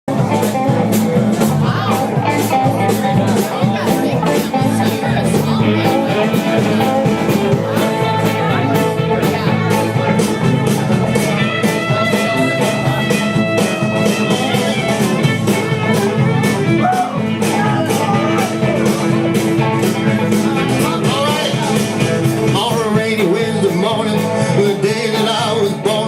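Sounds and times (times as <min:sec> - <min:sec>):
country-rock band playing: 0:00.1 - 0:26.0
fast drum beat: 0:00.1 - 0:26.0.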